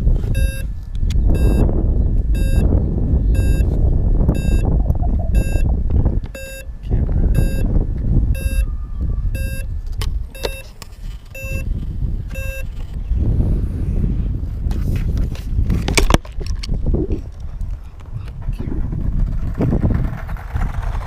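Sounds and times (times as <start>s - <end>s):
wind buffeting microphone: 0.0s - 21.0s
electronic warning beeps: 0.3s - 0.7s, 1.3s - 3.7s, 4.3s - 7.7s, 8.3s - 8.7s, 9.3s - 9.7s, 10.3s - 10.7s, 11.3s - 11.7s, 12.3s - 12.8s.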